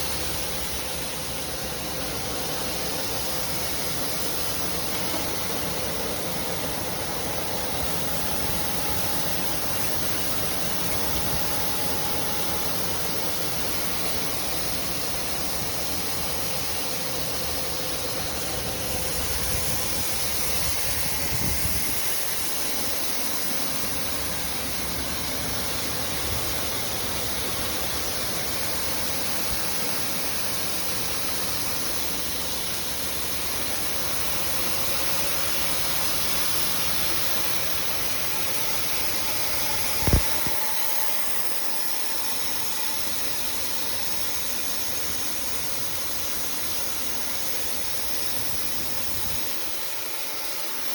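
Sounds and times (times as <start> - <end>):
machinery rushing hiss: 30.9 - 50.9.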